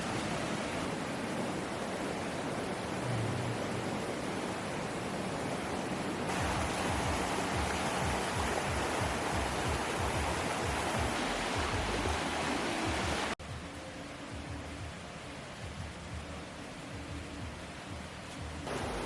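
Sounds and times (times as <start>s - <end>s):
water washing: 0.0s - 13.4s, 18.7s - 19.0s.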